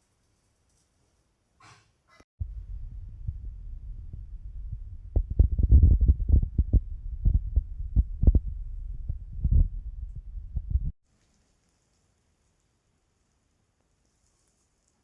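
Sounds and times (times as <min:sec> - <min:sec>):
low knocks and thumps: 0:02.4 - 0:11.0
steady low rumble: 0:02.4 - 0:11.0.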